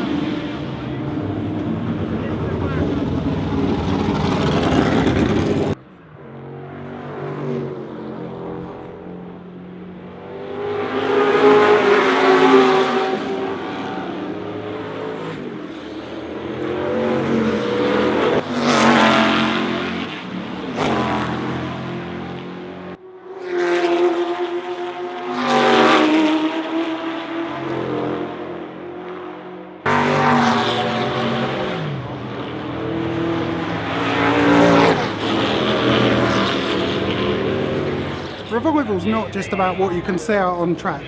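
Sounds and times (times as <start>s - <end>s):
racing car engines passing: 0.0s - 41.0s.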